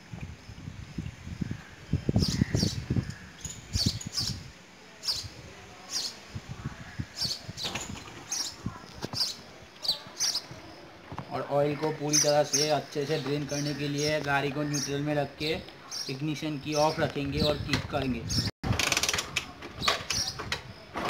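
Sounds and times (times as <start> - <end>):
small bird chirping: 1.9 - 6.2, 6.8 - 10.8, 19.8 - 20.5.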